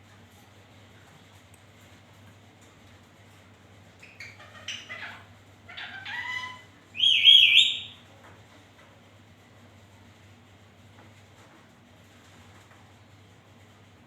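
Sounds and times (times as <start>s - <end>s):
parakeet chattering: 4.0s - 7.9s
parakeet shrill call: 4.6s - 8.0s.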